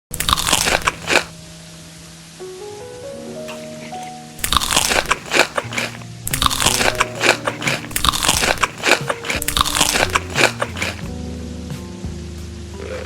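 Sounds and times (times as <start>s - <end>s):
crunchy food being chewed: 0.1s - 1.3s, 4.4s - 11.1s
simple melody background music: 0.1s - 13.0s.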